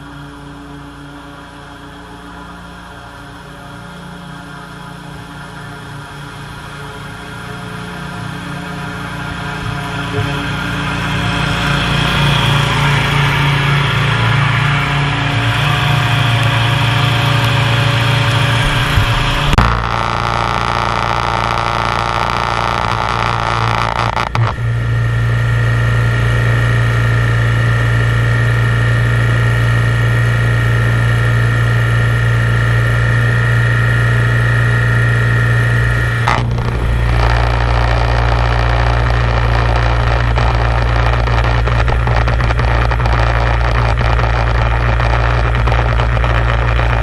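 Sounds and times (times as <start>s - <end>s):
engine running steadily: 0.0s - 47.0s.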